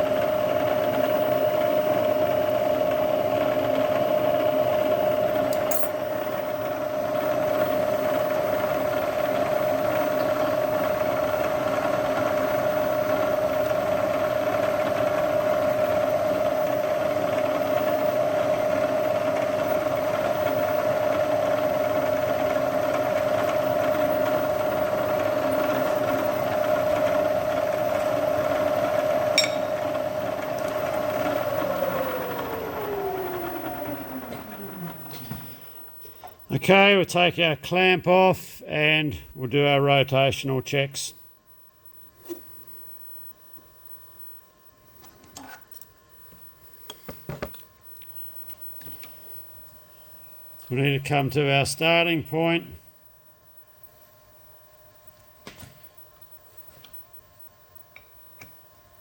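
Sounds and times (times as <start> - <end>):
spindle high whine: 28.9 - 44.6.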